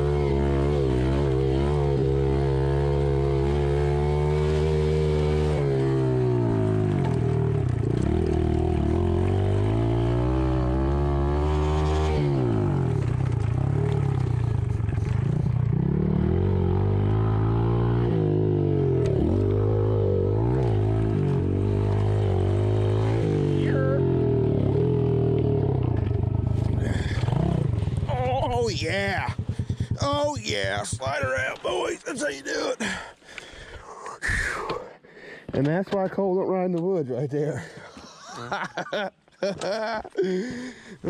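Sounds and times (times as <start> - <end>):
engine running: 0.0 - 32.7.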